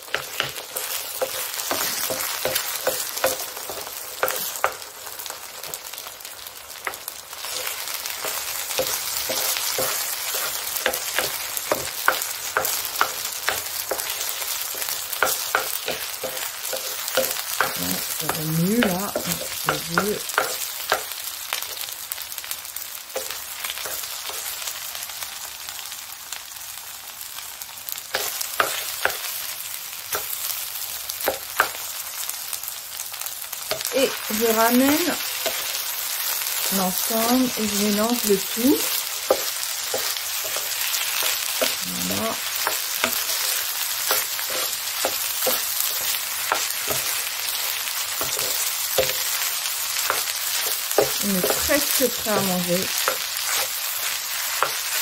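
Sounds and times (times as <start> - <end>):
eggs sizzling in a frying pan: 0.0 - 55.0
spatula scraping a pan: 38.4 - 55.0.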